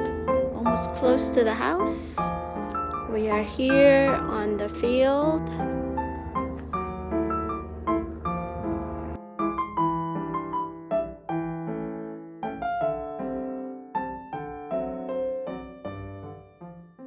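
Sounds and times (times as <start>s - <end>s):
low background rumble: 0.0s - 9.2s
solo piano music: 0.0s - 17.0s.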